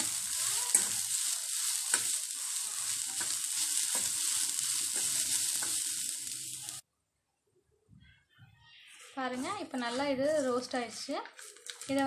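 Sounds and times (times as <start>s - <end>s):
food sizzling in a pan: 0.0s - 6.8s.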